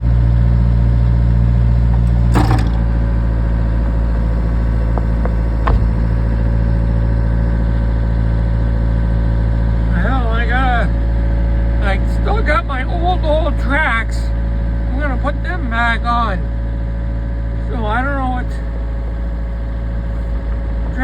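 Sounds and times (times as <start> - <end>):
excavator engine running: 0.0 - 21.0
sharp knocks: 1.9 - 3.3, 4.9 - 6.3.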